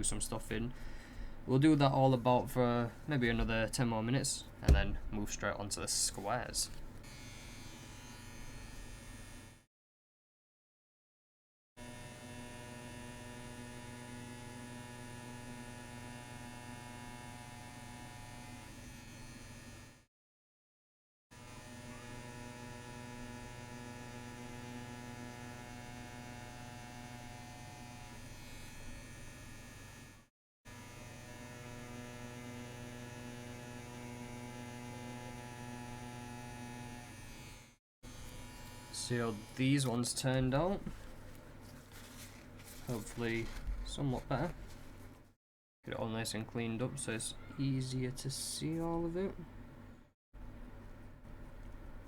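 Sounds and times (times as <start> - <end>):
tattoo machine buzzing: 7.0 - 9.6, 11.8 - 20.0, 21.4 - 39.9.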